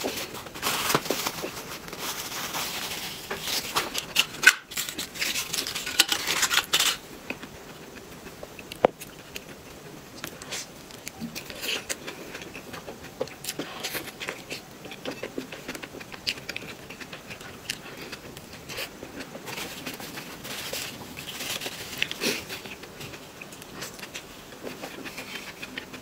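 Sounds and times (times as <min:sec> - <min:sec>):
wet chewing sounds: 0:07.3 - 0:26.0.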